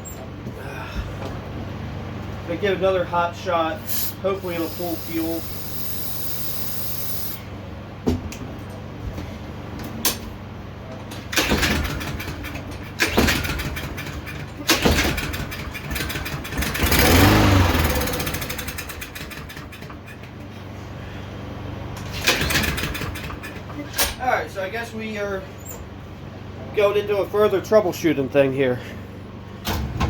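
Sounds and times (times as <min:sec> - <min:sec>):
lawnmower engine running: 0:11.0 - 0:30.0
lawnmower engine pull-start: 0:11.1 - 0:20.5, 0:21.9 - 0:24.2.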